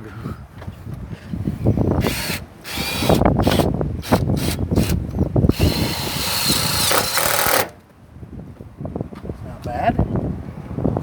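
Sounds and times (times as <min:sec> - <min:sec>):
power drill running: 0:02.0 - 0:07.8.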